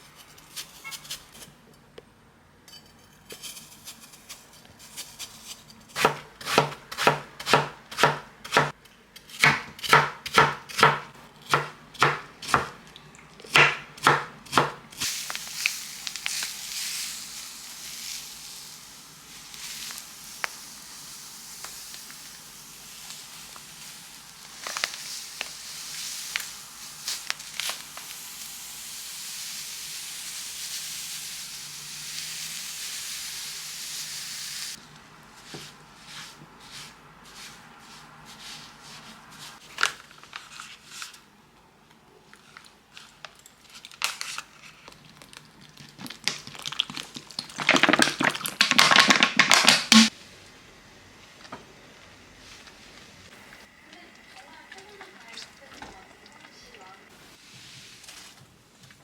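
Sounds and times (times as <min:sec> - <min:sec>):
knife chopping on cutting board: 0:06.0 - 0:12.8, 0:13.5 - 0:14.8
steady hiss: 0:15.0 - 0:34.9.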